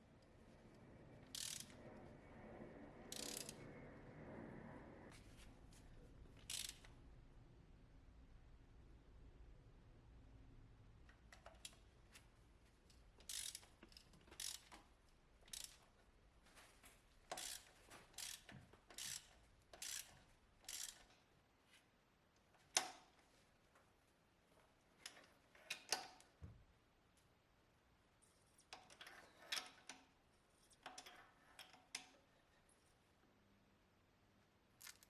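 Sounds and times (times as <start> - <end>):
hand ratchet clicking: 1.3 - 1.7, 3.1 - 3.6, 6.4 - 6.9, 12.9 - 14.8, 15.5 - 15.8, 17.3 - 21.2.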